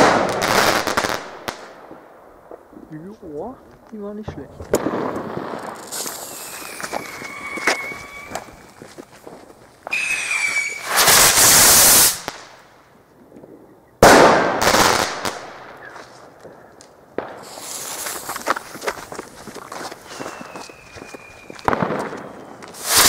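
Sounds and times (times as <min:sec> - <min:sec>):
firework crackling: 0:00.0 - 0:02.8, 0:04.2 - 0:12.8, 0:13.5 - 0:23.0
firework bang: 0:04.6 - 0:12.4, 0:21.4 - 0:23.0
loud rushing firework burst: 0:04.7 - 0:08.7, 0:09.9 - 0:12.4, 0:21.6 - 0:23.0
firework whistle: 0:05.8 - 0:08.8, 0:09.9 - 0:12.2, 0:20.0 - 0:23.0.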